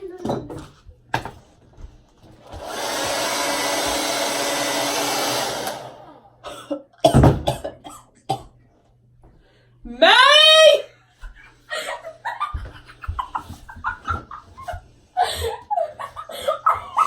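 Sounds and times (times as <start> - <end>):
hair dryer running: 2.3 - 6.4.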